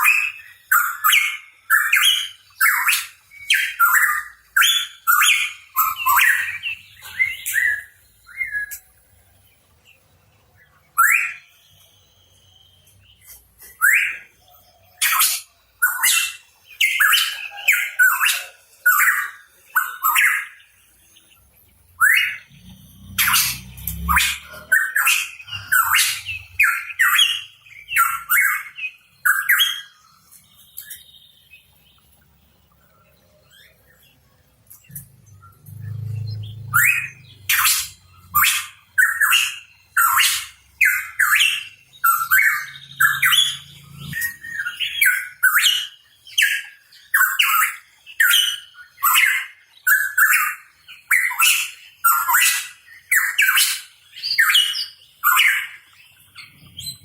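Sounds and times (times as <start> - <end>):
bird chirping harshly: 21.9 - 31.6, 34.9 - 57.0.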